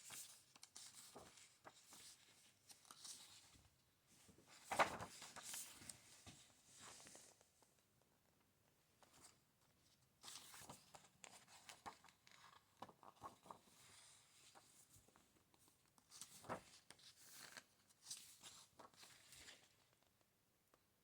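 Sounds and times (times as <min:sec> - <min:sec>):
book pages turning: 0:04.5 - 0:07.4, 0:10.3 - 0:13.7, 0:16.2 - 0:19.8.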